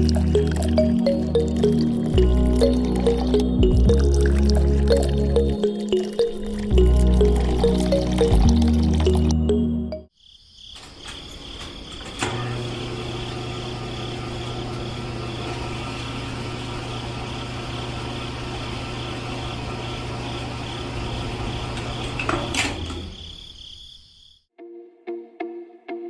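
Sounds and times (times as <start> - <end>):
small electric motor humming and whining: 12.5 - 22.0.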